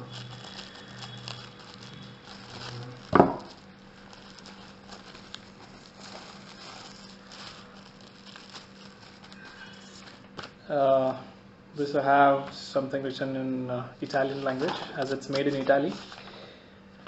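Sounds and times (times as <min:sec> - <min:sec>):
paper rustling: 0:00.0 - 0:10.6, 0:14.2 - 0:16.4.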